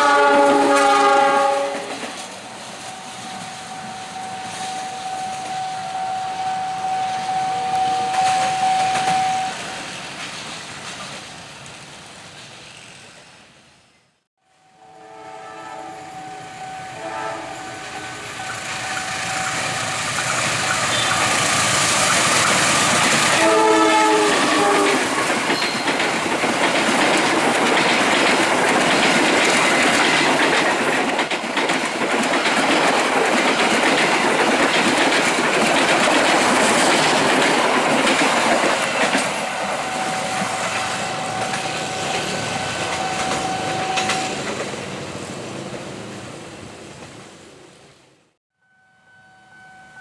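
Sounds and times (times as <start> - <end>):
train horn blast: 0.0 - 2.1, 2.9 - 9.7, 14.4 - 19.8, 20.8 - 21.3, 23.3 - 25.9, 39.8 - 44.5, 48.6 - 50.0
train wheels clattering over rail joints: 18.2 - 44.8.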